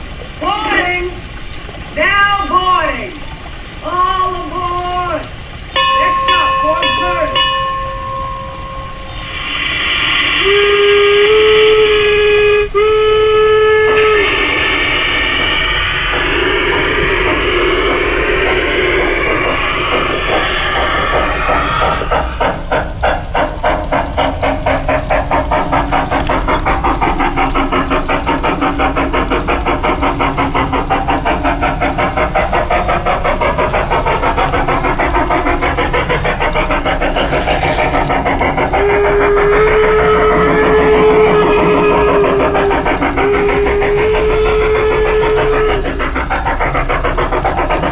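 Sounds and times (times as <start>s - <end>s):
steady steam hissing: 0.0s - 47.9s
steam whistle blasts: 4.2s - 30.8s, 33.3s - 46.2s.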